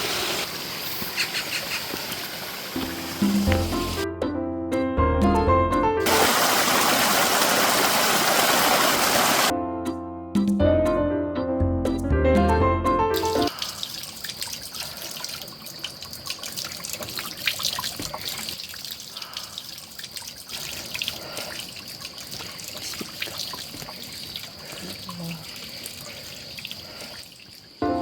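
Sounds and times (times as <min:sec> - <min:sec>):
stream trickling and gurgling: 0:00.0 - 0:04.1, 0:06.0 - 0:09.5, 0:13.2 - 0:28.0
music: 0:02.8 - 0:06.1, 0:09.5 - 0:13.5.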